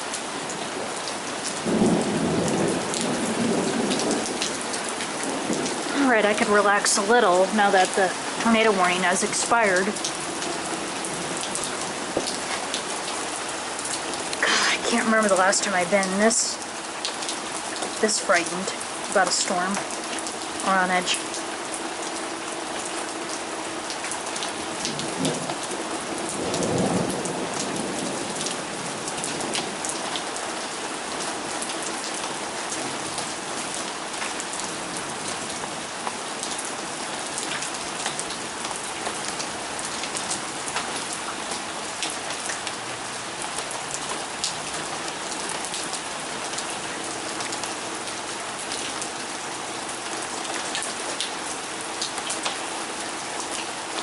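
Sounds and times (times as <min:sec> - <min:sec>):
steady rain falling: 0:00.0 - 0:54.0
low rumble of thunder: 0:01.6 - 0:06.8, 0:24.5 - 0:30.2.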